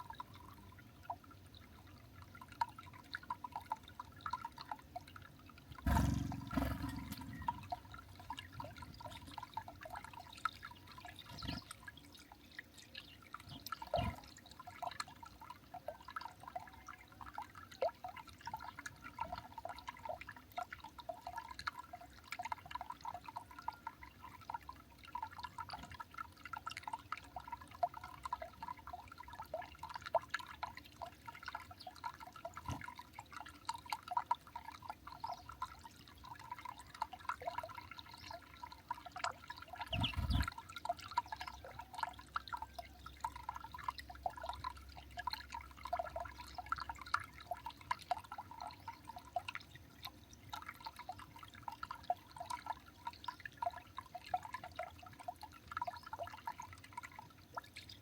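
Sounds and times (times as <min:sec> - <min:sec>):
small birds chirping: 0:05.9 - 0:09.4, 0:10.2 - 0:14.2, 0:39.7 - 0:40.6.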